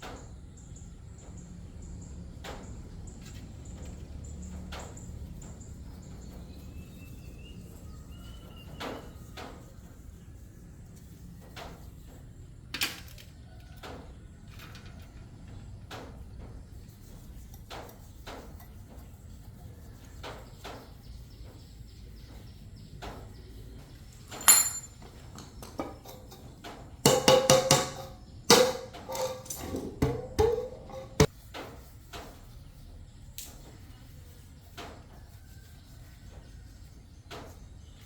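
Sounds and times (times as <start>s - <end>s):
tools clicking and knocking: 24.1s - 31.3s
ringing metallic clanks: 24.3s - 25.1s.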